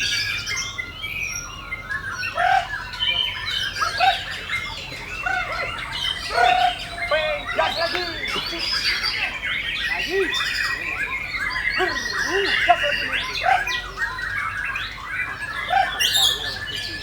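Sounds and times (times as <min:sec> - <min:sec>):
songbirds singing and whistling: 0:00.0 - 0:17.0.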